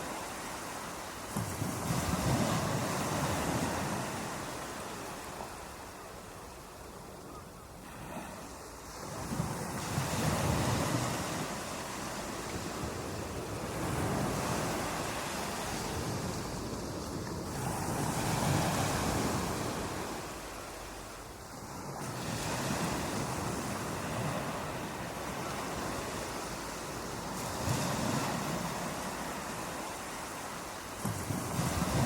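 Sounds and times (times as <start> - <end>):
waves crashing on beach: 0.0 - 32.0
wind on microphone: 8.0 - 20.4, 21.7 - 32.0.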